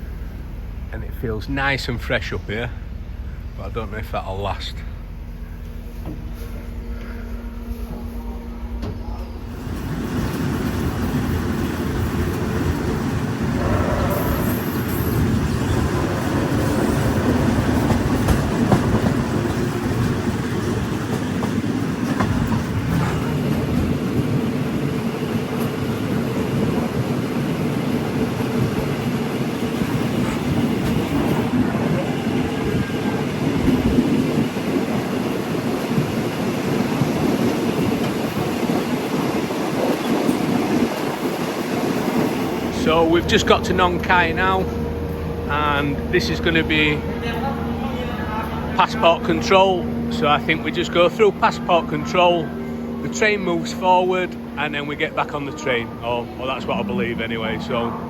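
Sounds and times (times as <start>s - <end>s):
steady hum: 0.0s - 9.6s
train wheels rumbling and rattling: 0.0s - 58.0s.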